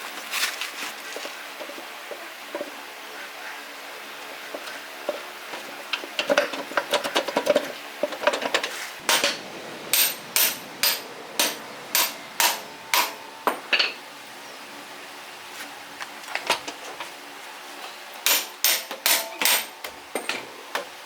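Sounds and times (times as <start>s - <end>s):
hammer striking metal: 9.0s - 14.0s, 18.3s - 19.7s.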